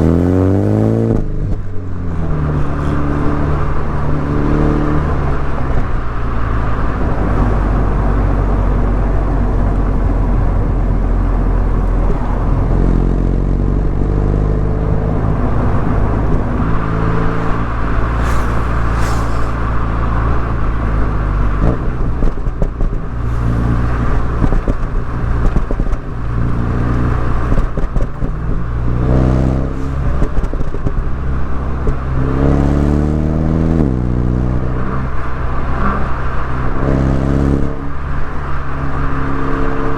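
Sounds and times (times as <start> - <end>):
car engine and exhaust revving: 0.0 - 39.9
road and wind noise: 0.0 - 39.9.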